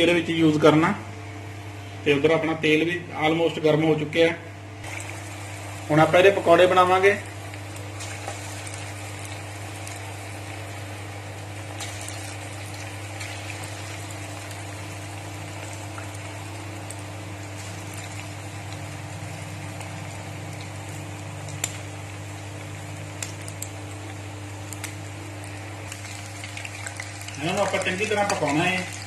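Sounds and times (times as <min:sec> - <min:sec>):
food deep-frying in oil: 0:04.8 - 0:29.0
oil popping: 0:11.5 - 0:29.0.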